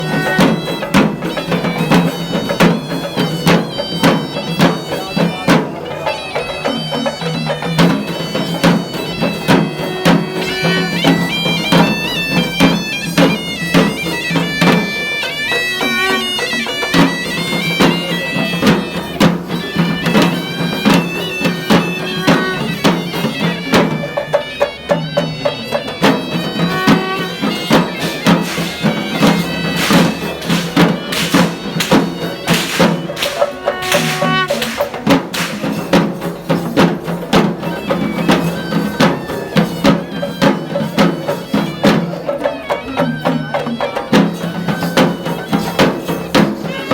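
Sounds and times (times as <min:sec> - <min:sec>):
shrill reed pipe melody: 0:25.8 - 0:36.6
rapid drumming: 0:26.0 - 0:38.4.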